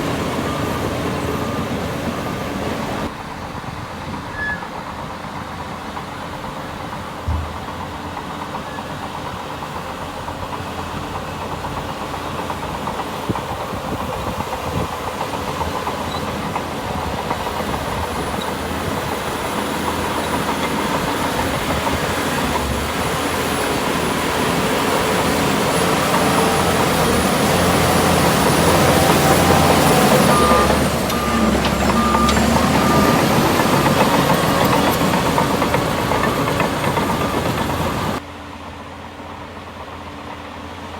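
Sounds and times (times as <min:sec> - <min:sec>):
reversing alarm beeping: 0:00.0 - 0:03.1, 0:23.8 - 0:38.2
diesel engine of heavy machinery: 0:00.0 - 0:40.9.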